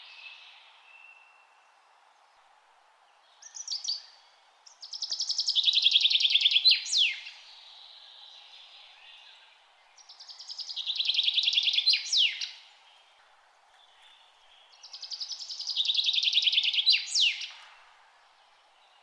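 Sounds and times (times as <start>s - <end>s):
faint background noise: 0.0s - 19.0s
songbird trilling: 10.2s - 12.6s, 14.9s - 17.6s.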